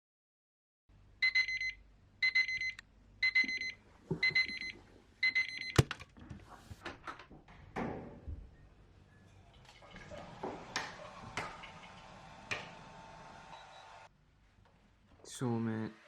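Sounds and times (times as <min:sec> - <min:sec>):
alarm clock beeping: 0:01.2 - 0:05.8.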